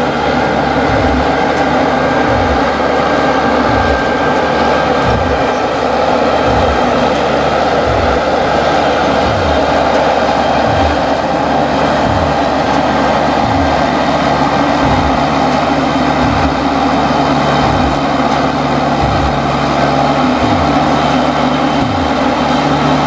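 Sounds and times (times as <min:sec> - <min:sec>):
diesel engine under load: 0:00.0 - 0:23.0
low thud: 0:00.8 - 0:16.8.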